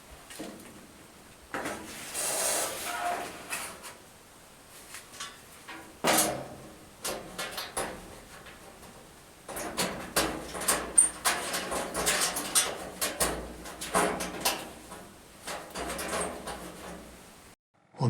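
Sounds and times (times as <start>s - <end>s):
filter scraping in metal slot: 1.9s - 4.0s, 6.0s - 17.4s.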